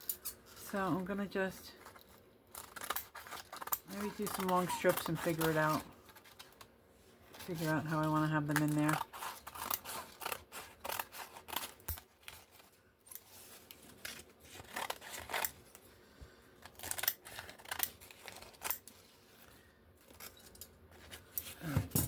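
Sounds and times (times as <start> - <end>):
scissors cutting paper: 1.9 - 6.6, 7.4 - 15.7, 16.6 - 19.0.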